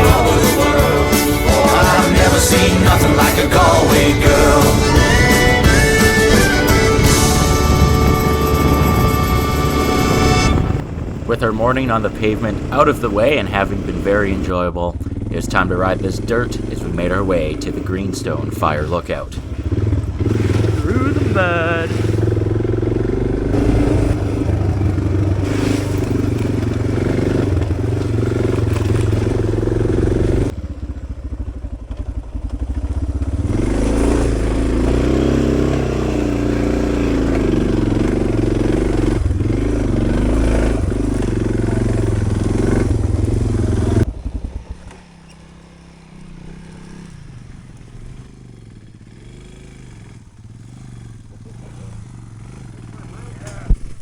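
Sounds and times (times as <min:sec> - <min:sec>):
motorcycle engine revving: 0:00.0 - 0:54.0
wind rumble on microphone: 0:06.8 - 0:11.4.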